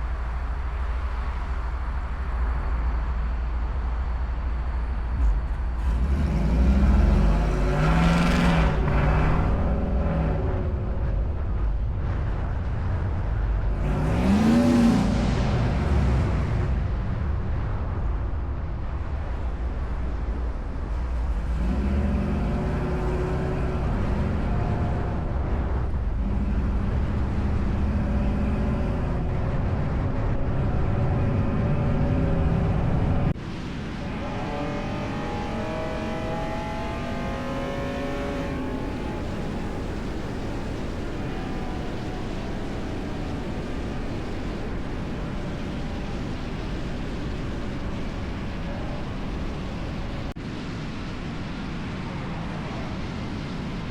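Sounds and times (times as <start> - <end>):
car engines idling: 0.0 - 50.4
car engine revving: 4.6 - 17.6, 21.0 - 50.4.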